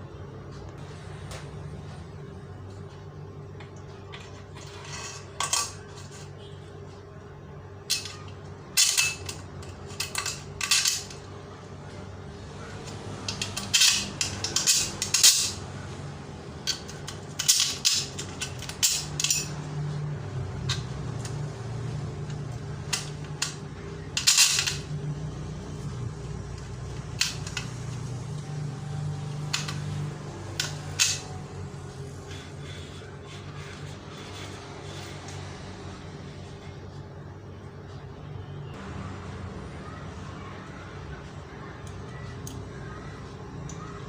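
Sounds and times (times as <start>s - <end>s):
steady low hum: 0.0s - 44.0s
small metal parts clinking: 7.9s - 11.3s, 13.2s - 15.7s, 16.6s - 19.7s, 22.3s - 25.0s, 29.4s - 31.5s.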